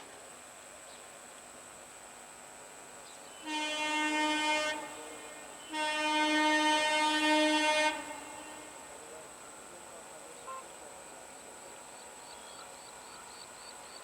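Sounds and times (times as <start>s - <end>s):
train horn blasts: 3.3s - 9.0s.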